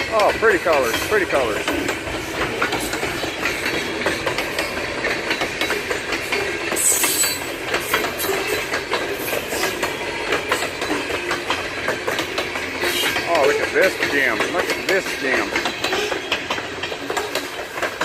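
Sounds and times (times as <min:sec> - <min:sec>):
freight train rumble: 0:00.0 - 0:18.0
wheels clicking over rail joints: 0:00.0 - 0:18.0
high wheel squeal: 0:06.4 - 0:11.0.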